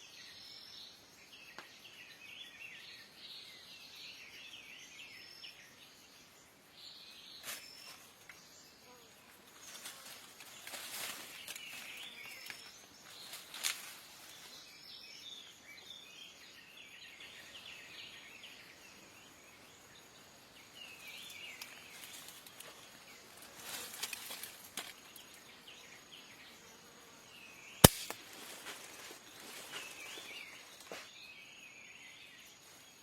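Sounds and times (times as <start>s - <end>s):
insects hissing: 0.3s - 33.0s
small birds chirping: 9.6s - 28.1s
sharp snap or click: 27.8s - 28.2s.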